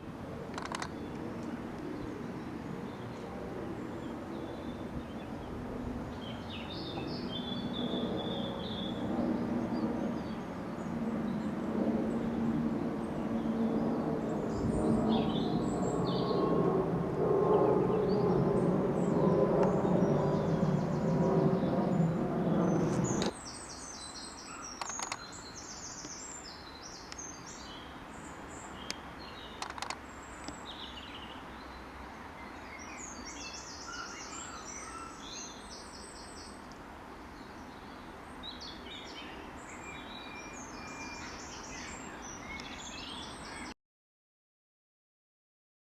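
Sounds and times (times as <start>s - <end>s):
low outdoor background hum: 0.0s - 43.7s
sharp clicks: 0.5s - 1.5s, 22.9s - 23.3s, 24.8s - 25.2s, 29.6s - 30.6s
small birds chirping and singing: 0.6s - 12.3s, 13.0s - 16.6s, 17.5s - 43.8s.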